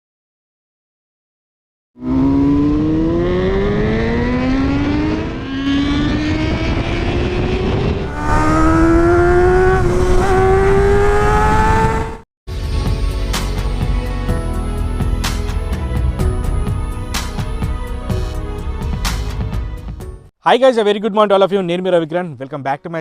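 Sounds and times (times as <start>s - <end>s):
motorcycle engine accelerating: 2.0s - 12.2s.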